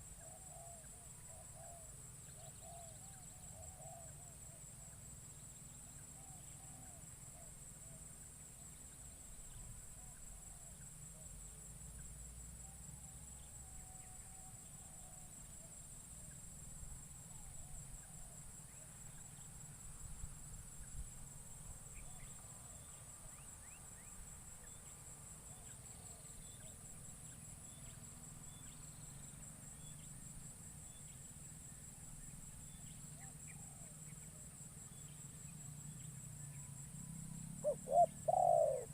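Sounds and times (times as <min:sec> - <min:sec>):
insects droning trill: 0:00.0 - 0:38.9
faint bird chirps: 0:37.3 - 0:38.9.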